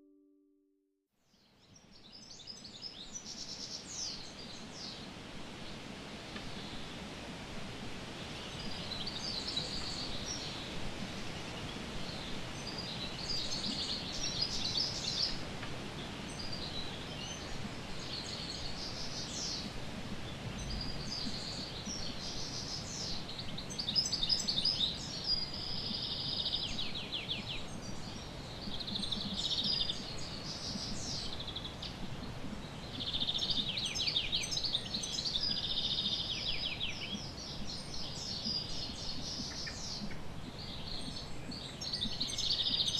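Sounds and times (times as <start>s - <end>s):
faint background hiss: 1.2s - 42.9s
small birds chirping: 8.4s - 15.4s, 16.0s - 42.9s.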